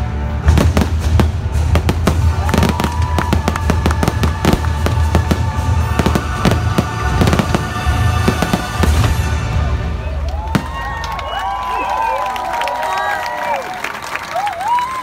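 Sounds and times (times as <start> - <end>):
music soundtrack: 0.0 - 11.9.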